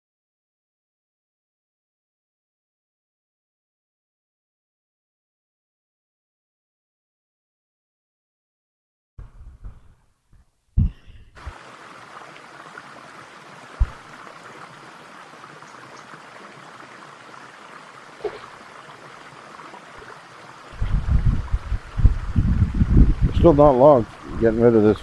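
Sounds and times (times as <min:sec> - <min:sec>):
thumps on microphone: 0:09.2 - 0:10.0, 0:13.8 - 0:14.0
waterfall rushing: 0:11.4 - 0:25.0.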